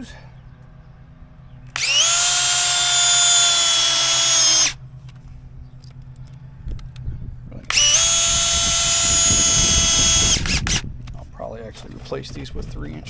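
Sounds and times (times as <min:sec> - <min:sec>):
power drill driving screws: 0:01.8 - 0:04.8, 0:07.7 - 0:10.8.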